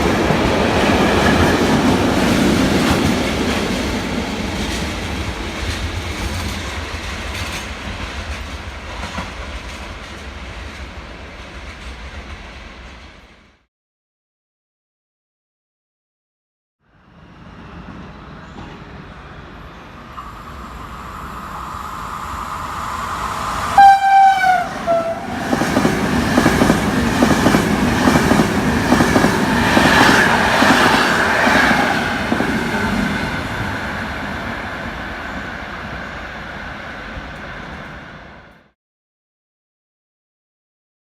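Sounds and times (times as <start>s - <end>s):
train horn blasts: 23.7s - 25.3s.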